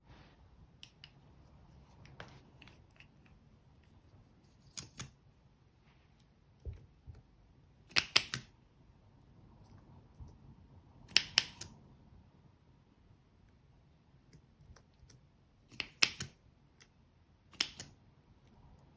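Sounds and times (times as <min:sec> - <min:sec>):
sharp clicks and snaps: 0:07.9 - 0:08.5, 0:11.1 - 0:11.8, 0:14.4 - 0:16.9, 0:17.5 - 0:18.0.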